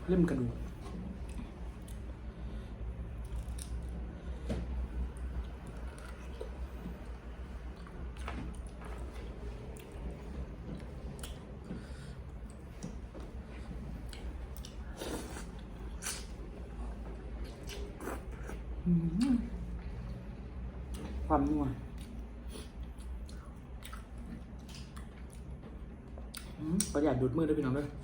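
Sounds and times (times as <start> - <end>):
steady low hum: 0.0 - 28.0
person chewing crunchy food: 3.1 - 4.1, 13.6 - 19.3, 22.0 - 27.0.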